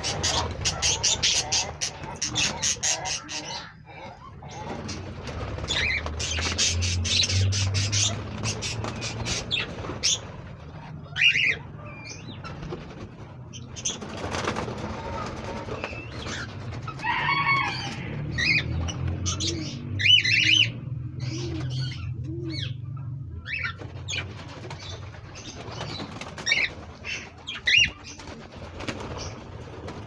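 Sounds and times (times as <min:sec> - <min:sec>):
wings flapping: 0:00.0 - 0:03.4, 0:04.5 - 0:11.0, 0:12.4 - 0:19.3, 0:23.6 - 0:30.0
pigeons cooing: 0:00.0 - 0:30.0.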